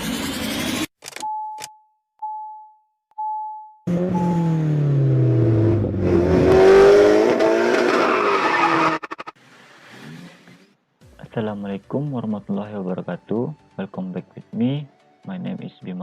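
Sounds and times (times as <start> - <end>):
short electronic beeps: 1.2 - 4.7
car engine sound effect: 3.9 - 10.7.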